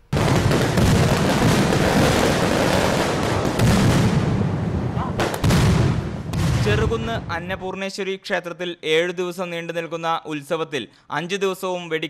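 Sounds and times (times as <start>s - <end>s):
fireworks barrage: 0.0s - 7.6s.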